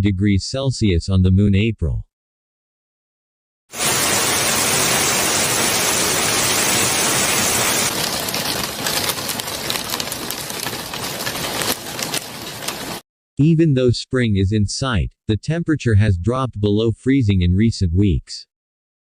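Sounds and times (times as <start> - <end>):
hail and heavy rain: 3.8 - 13.0.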